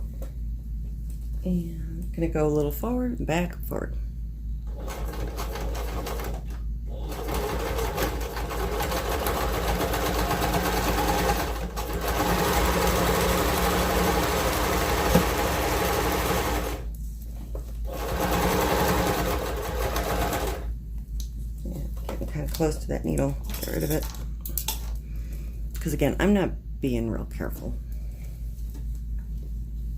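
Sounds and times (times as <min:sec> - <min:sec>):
electric sewing machine stitching: 0:04.7 - 0:16.9, 0:17.9 - 0:20.7.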